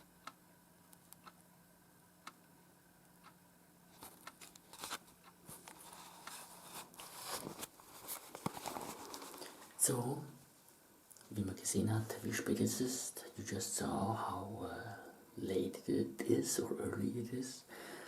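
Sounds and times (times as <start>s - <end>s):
scratchy rustling: 3.9s - 9.7s.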